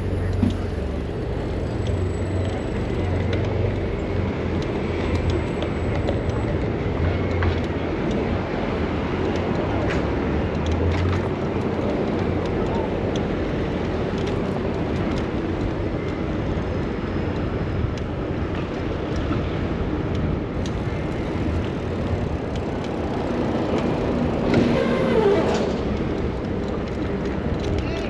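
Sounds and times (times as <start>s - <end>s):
rumble of city traffic: 0.0s - 28.0s.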